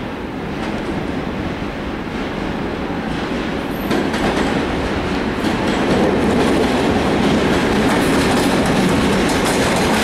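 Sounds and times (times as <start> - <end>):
wheels clacking over rail joints: 2.3 - 10.0.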